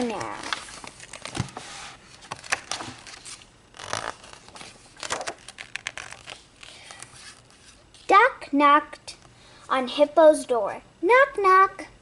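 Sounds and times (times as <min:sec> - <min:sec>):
pages rustling and turning: 0:00.0 - 0:08.1.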